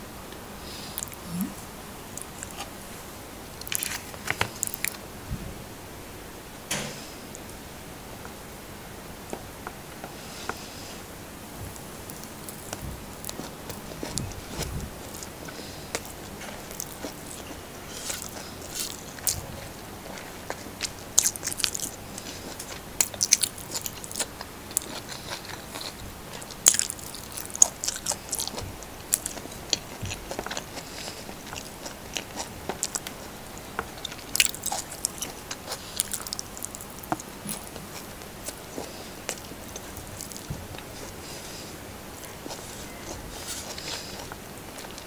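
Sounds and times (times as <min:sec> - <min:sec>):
chewing with mouth clicks: 0:03.6 - 0:05.0, 0:11.6 - 0:45.0.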